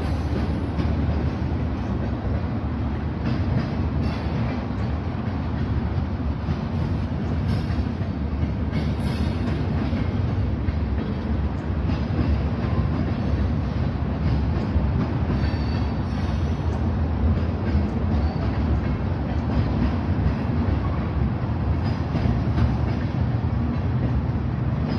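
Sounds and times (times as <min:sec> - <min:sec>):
train wheels rumbling on track: 0:00.0 - 0:24.9.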